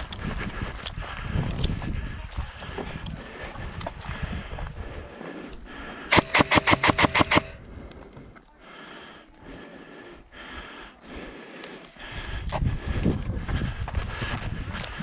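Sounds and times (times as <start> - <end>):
wind: 0.0 - 15.0
airsoft gun firing burst: 6.1 - 7.6.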